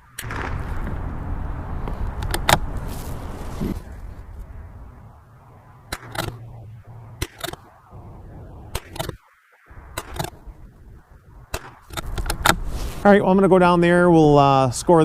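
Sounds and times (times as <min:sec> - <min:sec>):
wind rumbling on microphone: 0:00.0 - 0:15.0
sharp clicks: 0:01.8 - 0:02.8, 0:05.8 - 0:06.6, 0:07.2 - 0:07.9, 0:08.7 - 0:09.2, 0:09.9 - 0:10.5, 0:11.5 - 0:12.7.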